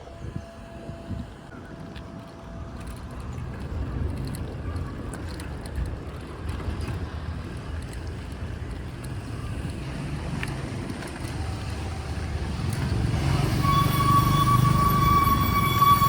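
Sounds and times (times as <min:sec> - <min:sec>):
road noise: 0:00.0 - 0:16.0
wind buffeting microphone: 0:00.0 - 0:16.0
small clicks and rattles: 0:02.8 - 0:12.9.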